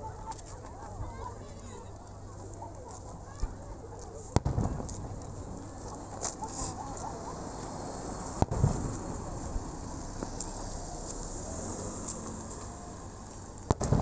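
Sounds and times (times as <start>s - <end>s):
firework crack and boom: 4.4s - 5.5s, 8.3s - 11.3s, 13.6s - 14.0s.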